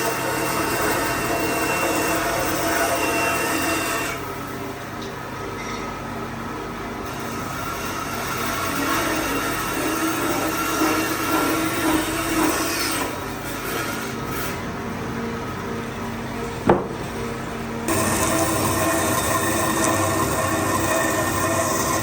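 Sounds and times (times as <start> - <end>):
power tool working wood: 17.9 - 22.0.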